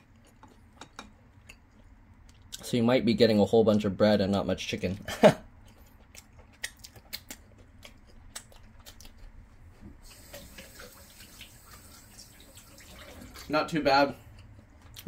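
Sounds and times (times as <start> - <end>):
mouth chewing wetly: 5.6 - 10.8.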